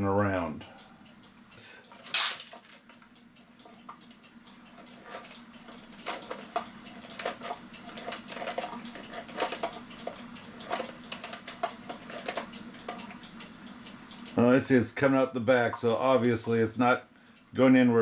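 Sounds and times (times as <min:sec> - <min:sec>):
steady low hum: 0:00.0 - 0:18.0
clock chain clicking and rattling: 0:03.6 - 0:14.5.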